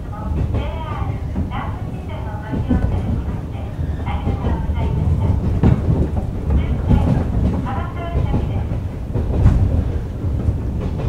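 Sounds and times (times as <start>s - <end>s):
train wheels rumbling: 0.0s - 11.0s
knocks over rail joints: 2.4s - 11.0s.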